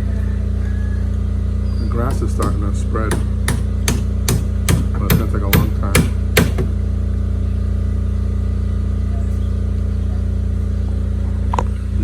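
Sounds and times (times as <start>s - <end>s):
hammer blow on fence: 2.0s - 6.8s.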